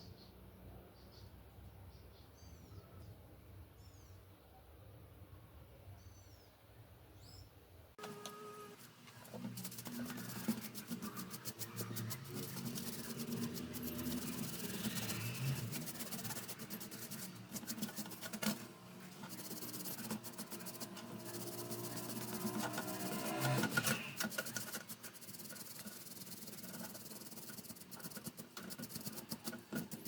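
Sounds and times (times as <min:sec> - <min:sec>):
brush scrubbing fan parts: 0:08.0 - 0:30.0
hands rubbing and scratching: 0:09.1 - 0:30.0.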